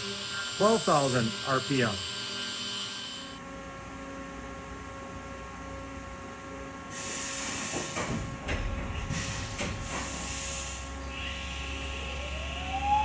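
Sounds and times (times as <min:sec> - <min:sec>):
mill spindle whining: 0:00.0 - 0:03.5, 0:07.0 - 0:13.0
air hissing bursts: 0:06.9 - 0:08.1, 0:09.0 - 0:12.2.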